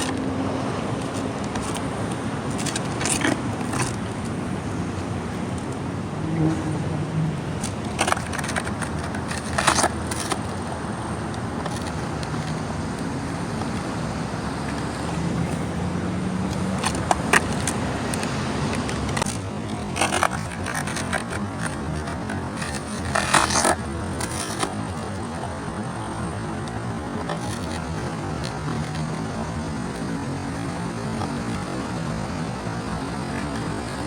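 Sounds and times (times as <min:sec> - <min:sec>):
skateboard clacking and knocking: 0:00.0 - 0:34.0
skateboard wheels rolling on pavement: 0:00.0 - 0:34.0.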